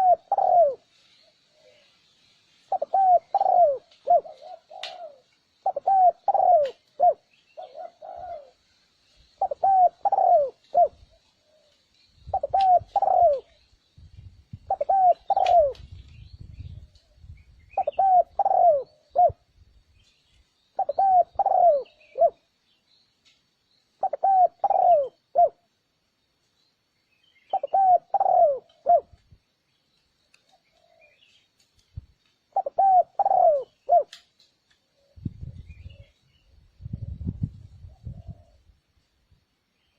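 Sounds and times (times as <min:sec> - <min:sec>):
dove cooing: 0:00.0 - 0:01.9, 0:02.7 - 0:08.6, 0:09.4 - 0:13.6, 0:14.7 - 0:15.9, 0:17.8 - 0:19.5, 0:20.8 - 0:22.5, 0:24.0 - 0:25.7, 0:27.5 - 0:29.2, 0:32.5 - 0:34.2, 0:37.0 - 0:38.7.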